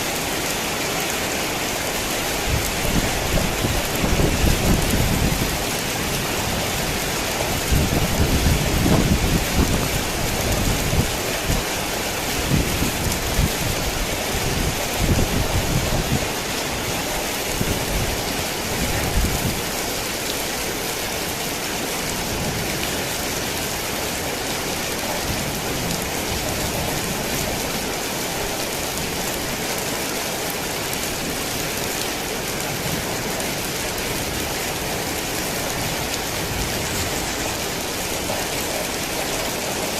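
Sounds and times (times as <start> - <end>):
heavy rain: 0.0 - 39.9
thunder rumbling: 2.4 - 11.5.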